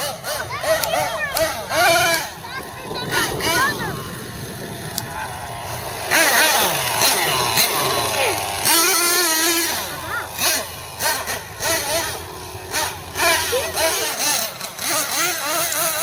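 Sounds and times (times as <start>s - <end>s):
toy truck engine revving: 0.0s - 16.0s.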